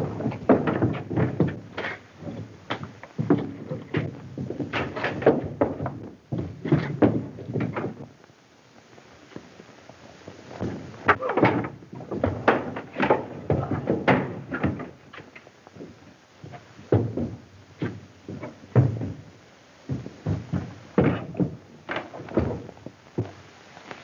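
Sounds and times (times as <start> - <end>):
irregular knocks and thumps: 0.0 - 8.2, 10.3 - 23.4.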